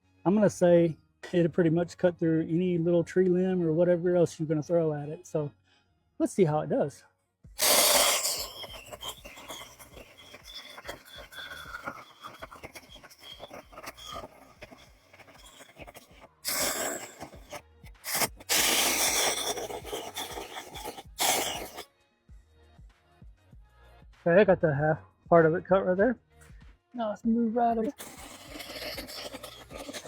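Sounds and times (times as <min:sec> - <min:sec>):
chainsaw cutting wood: 0:14.0 - 0:21.8.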